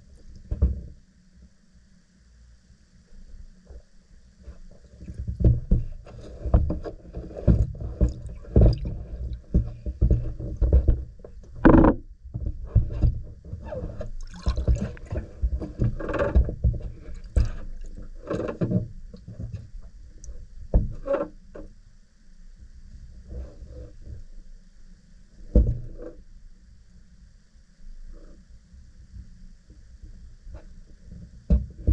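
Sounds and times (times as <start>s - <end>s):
objects rustling and knocking: 4.6s - 19.7s.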